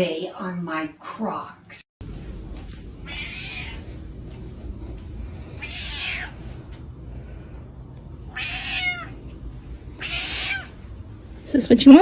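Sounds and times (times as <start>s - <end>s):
low rumble: 2.0s - 8.4s
cat meowing: 3.0s - 4.0s, 5.5s - 6.7s, 8.3s - 9.2s, 9.9s - 10.9s.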